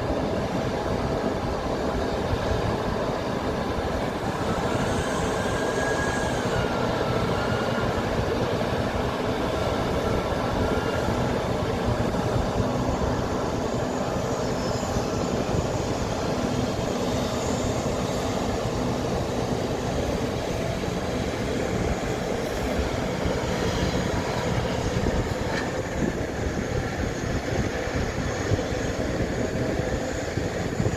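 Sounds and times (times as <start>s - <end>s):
faint high squeals: 4.2s - 11.6s.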